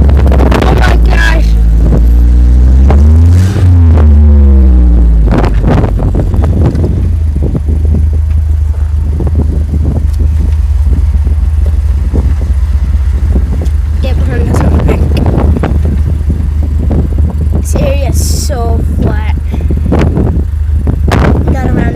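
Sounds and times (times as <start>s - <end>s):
vehicle engine rumbling: 0.0s - 21.9s
vehicle knocks and rattles: 5.3s - 17.9s.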